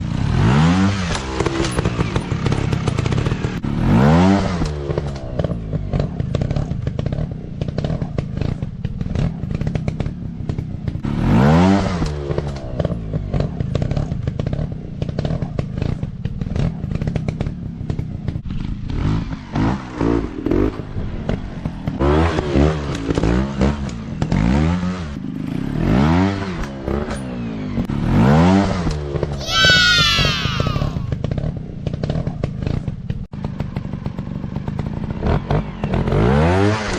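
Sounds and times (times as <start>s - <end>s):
dirt bike engines revving: 29.4s - 31.2s.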